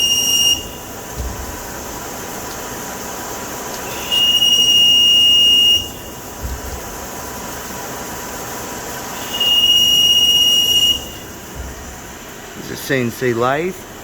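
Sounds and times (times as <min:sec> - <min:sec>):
lathe high squeal: 0:00.0 - 0:01.1, 0:03.7 - 0:06.4, 0:09.1 - 0:11.5
lathe running noise: 0:00.0 - 0:14.0.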